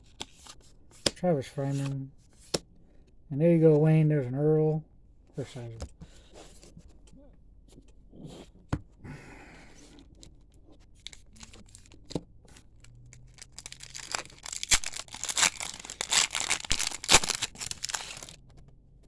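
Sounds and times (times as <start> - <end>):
wrapper tearing and crinkling: 11.0 - 18.4.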